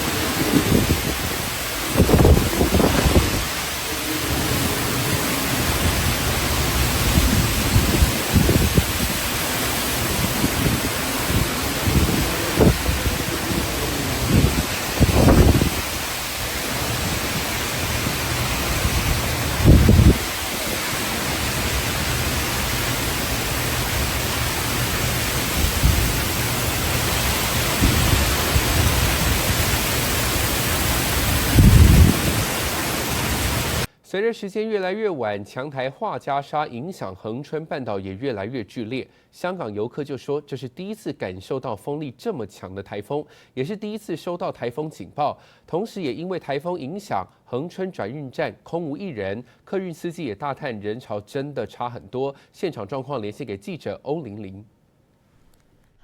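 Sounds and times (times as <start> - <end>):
wind gusts buffeting microphone: 0.0 - 22.7, 23.8 - 33.9
heavy rain: 0.0 - 33.9
strong wind: 0.0 - 33.9.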